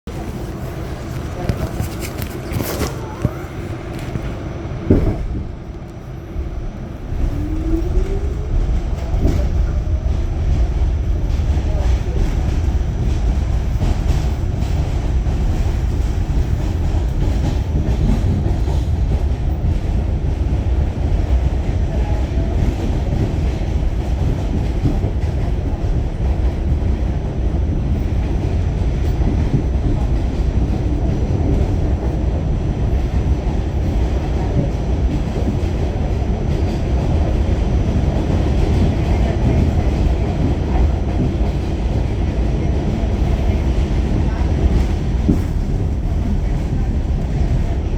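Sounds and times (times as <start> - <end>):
subway train rumbling on track: 0.0 - 47.9.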